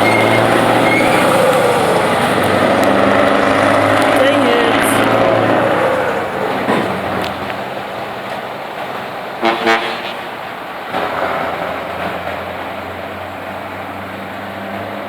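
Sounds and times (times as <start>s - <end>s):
car engine running: 0.0s - 7.7s
car horn toots: 9.4s - 10.3s.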